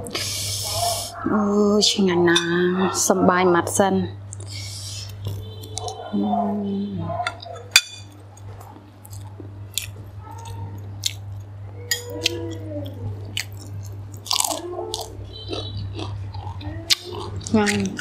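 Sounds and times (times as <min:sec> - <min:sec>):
steady low hum: 0:00.0 - 0:18.0
chewing with crisp crunches: 0:04.3 - 0:06.2, 0:07.2 - 0:18.0.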